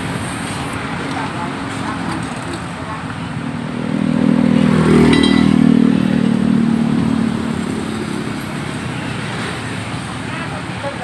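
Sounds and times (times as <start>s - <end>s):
vehicle engine passing by: 3.4s - 9.8s.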